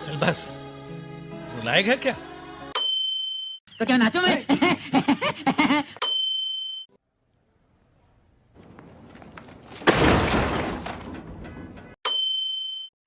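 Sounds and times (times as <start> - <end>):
loud crash trailing into crackle: 9.8 - 11.2
short bell ding: 12.1 - 12.9.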